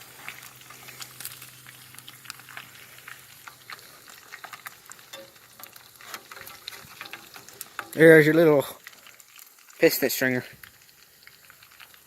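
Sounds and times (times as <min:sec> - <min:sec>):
fish frying in a pan: 0:00.0 - 0:12.0.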